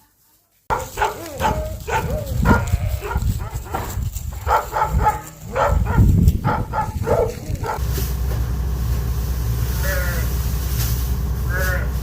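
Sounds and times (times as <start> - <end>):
engine running: 5.0 - 12.0.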